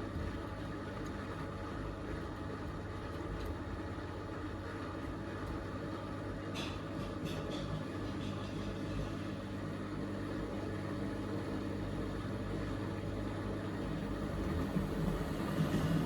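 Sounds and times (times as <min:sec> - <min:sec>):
washing machine spinning: 0:10.6 - 0:16.0.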